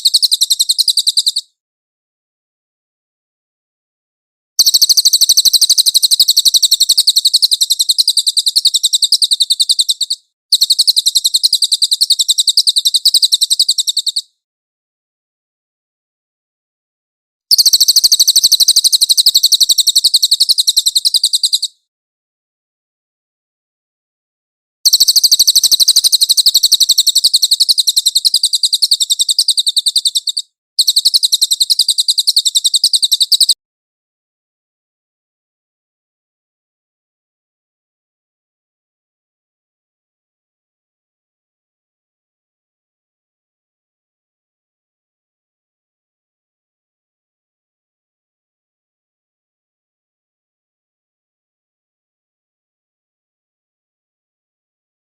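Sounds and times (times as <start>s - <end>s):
bird singing rapid trills: 0.0s - 1.5s, 4.6s - 14.3s, 17.5s - 21.8s, 24.9s - 33.6s.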